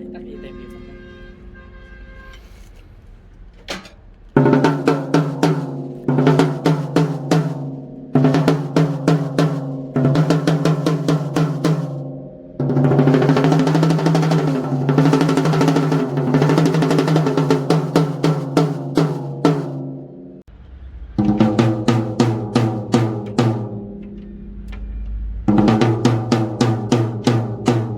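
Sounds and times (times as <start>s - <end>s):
snare drum strokes and roll: 4.4s - 12.0s, 12.6s - 20.0s, 21.2s - 24.0s, 25.5s - 27.9s.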